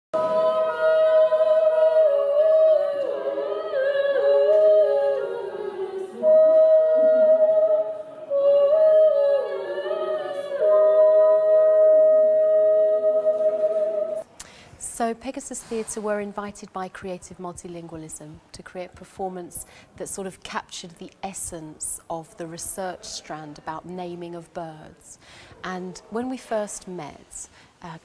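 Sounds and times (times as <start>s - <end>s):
two voices singing in harmony: 0.2s - 14.3s.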